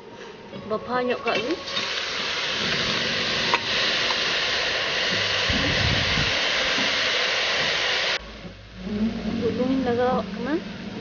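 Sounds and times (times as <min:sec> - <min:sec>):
cabbage sizzling in hot oil: 0:01.2 - 0:08.2.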